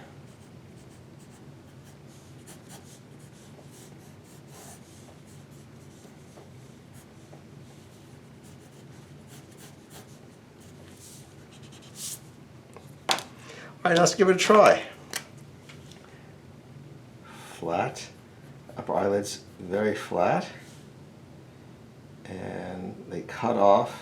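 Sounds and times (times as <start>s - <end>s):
low room hum: 0.0s - 24.0s
pencil scratching on paper: 0.3s - 12.2s.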